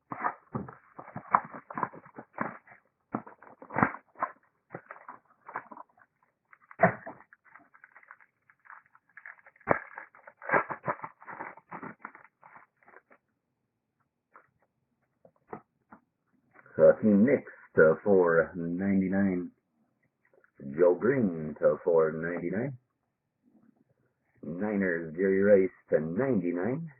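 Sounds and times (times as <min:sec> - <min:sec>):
cards and plastic sleeves rustling: 0:00.0 - 0:13.2.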